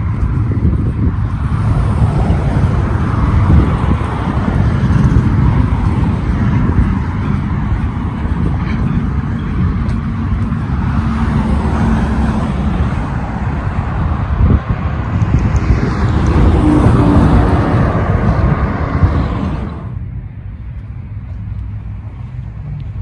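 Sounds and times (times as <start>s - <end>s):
car passing close: 0.0s - 20.0s
rumble of road traffic: 0.0s - 23.0s.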